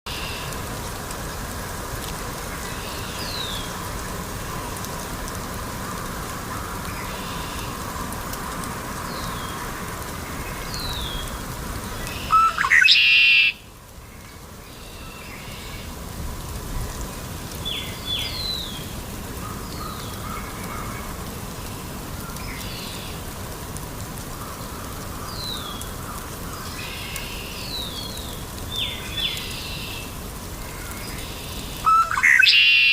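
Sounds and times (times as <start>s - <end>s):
blackbirds chirping: 10.3s - 13.6s, 30.8s - 32.9s.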